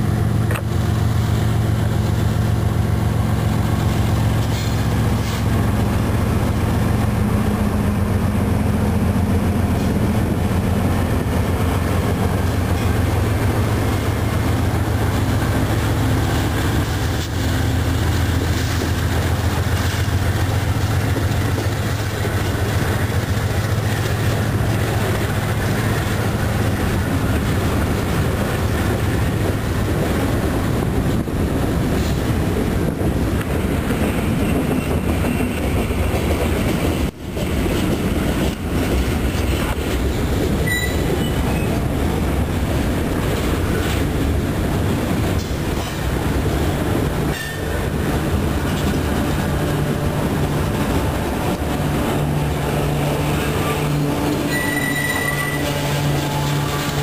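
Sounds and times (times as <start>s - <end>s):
diesel locomotive engine hum: 0.0s - 57.0s
train wheels on rails: 0.0s - 57.0s
high wheel squeal: 40.6s - 41.8s, 53.4s - 57.0s.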